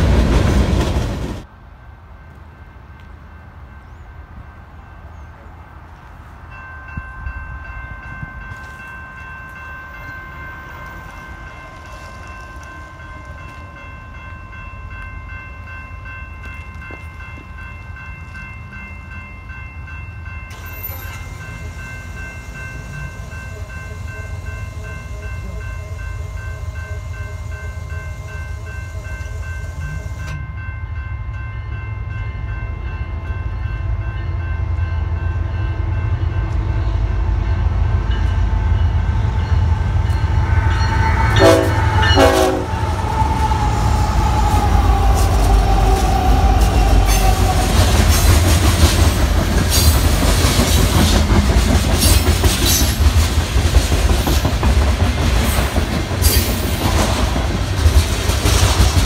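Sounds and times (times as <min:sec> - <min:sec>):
freight train rumbling: 0:00.0 - 0:59.0
crossing bell ringing: 0:02.1 - 0:59.0
train horn blasts: 0:39.8 - 0:43.2.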